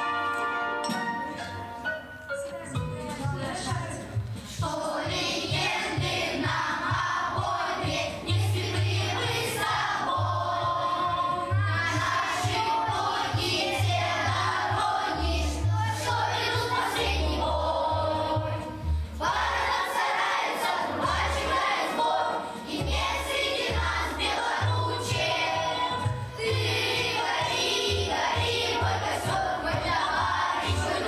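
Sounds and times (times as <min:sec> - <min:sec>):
instrumental accompaniment with bass: 0:00.0 - 0:31.0
children singing together: 0:04.6 - 0:31.0.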